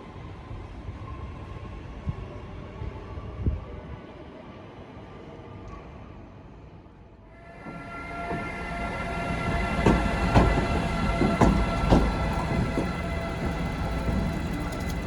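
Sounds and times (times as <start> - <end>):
electric locomotive whine: 7.3 - 15.0
wheels clacking over rail joints: 9.4 - 15.0.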